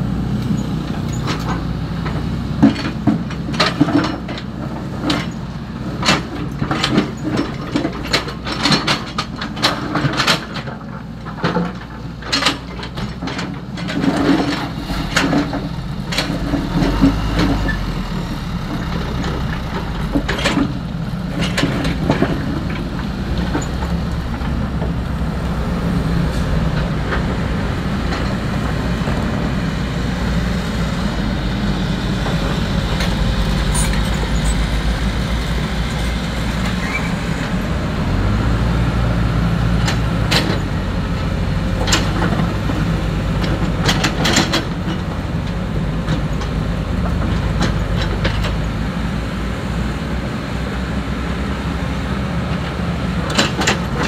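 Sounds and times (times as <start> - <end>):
excavator diesel engine running: 0.0 - 54.0
knocks and rattles of digging gravel: 0.9 - 30.0.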